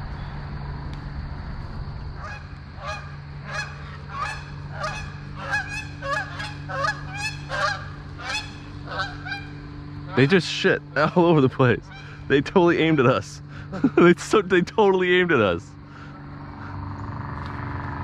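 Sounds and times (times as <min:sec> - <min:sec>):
steady low hum: 0:00.0 - 0:18.0
geese honking: 0:02.2 - 0:14.2.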